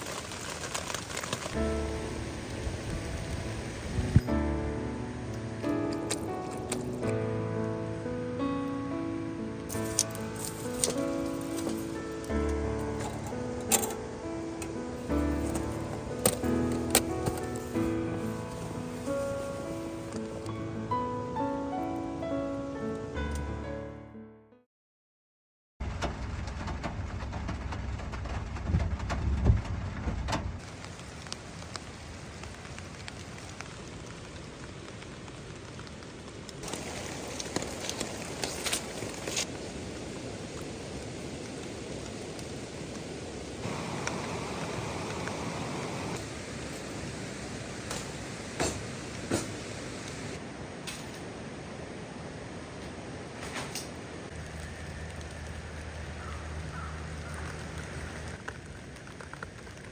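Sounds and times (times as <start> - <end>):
rain pattering on a tarp: 0.0 - 4.6, 9.6 - 20.5, 25.8 - 59.9.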